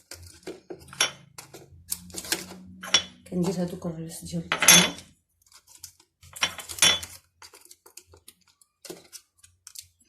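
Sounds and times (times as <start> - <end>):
kitchen clatter: 0.0 - 3.8, 4.5 - 5.1, 6.3 - 8.0.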